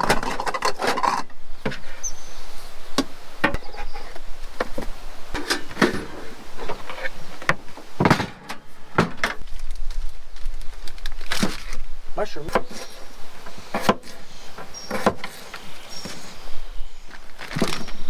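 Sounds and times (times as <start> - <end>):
cooking gear knocks and clatter: 0.0 - 1.8.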